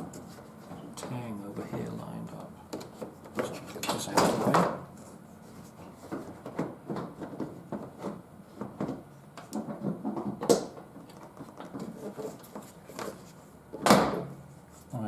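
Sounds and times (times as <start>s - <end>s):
plastic knocks and scrapes: 5.6s - 14.3s.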